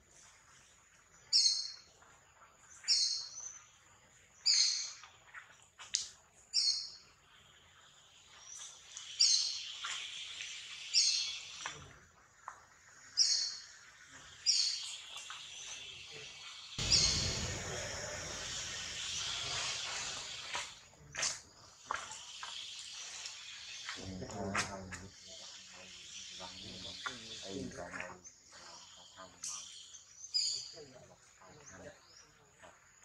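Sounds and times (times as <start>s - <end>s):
bird calling: 14.5s - 20.8s.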